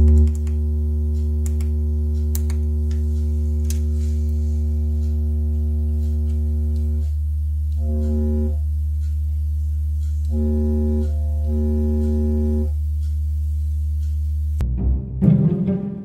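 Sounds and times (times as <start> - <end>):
music with strings and percussion: 14.6 - 16.0.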